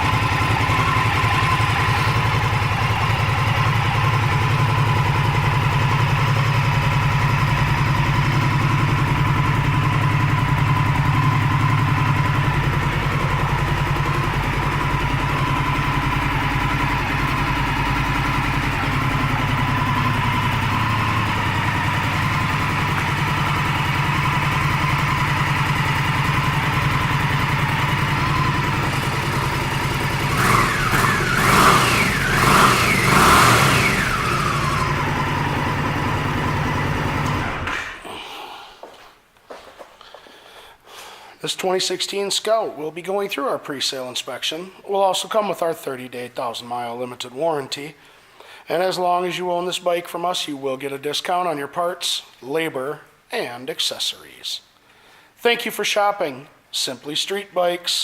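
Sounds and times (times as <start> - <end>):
motorcycle engine idling and revving: 0.0 - 38.0.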